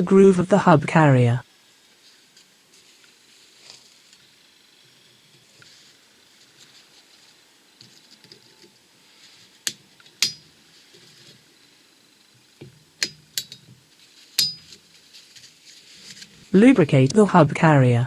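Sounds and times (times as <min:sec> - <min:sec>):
sharp metallic clinks: 0:14.4 - 0:14.8.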